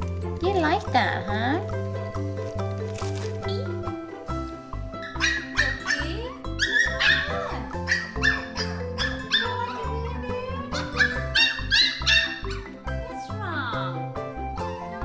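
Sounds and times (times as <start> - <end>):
background music: 0.0 - 15.0
puppy yipping and whimpering: 5.0 - 9.9, 10.7 - 12.8.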